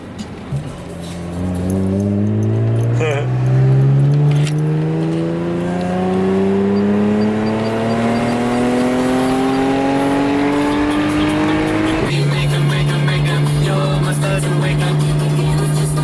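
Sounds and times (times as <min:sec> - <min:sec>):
car engine accelerating: 0:00.3 - 0:16.0
music: 0:09.9 - 0:16.0.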